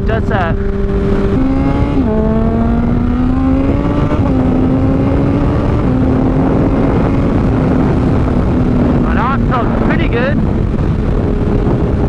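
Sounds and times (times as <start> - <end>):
motorcycle engine running: 0.0 - 12.0
wind rush: 0.0 - 12.0.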